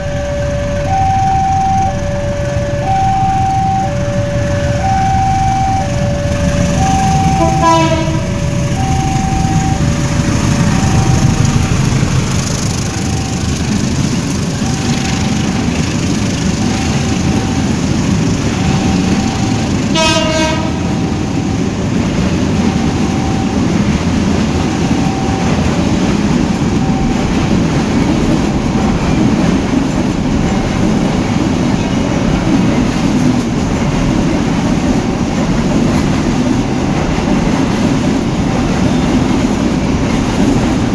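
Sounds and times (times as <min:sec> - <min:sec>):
locomotive horn blast: 0:00.0 - 0:11.9, 0:18.5 - 0:21.6
freight train rumbling past: 0:00.0 - 0:40.9
level-crossing alarm beeping: 0:00.0 - 0:40.9
wheels clicking over rail joints: 0:05.9 - 0:40.9.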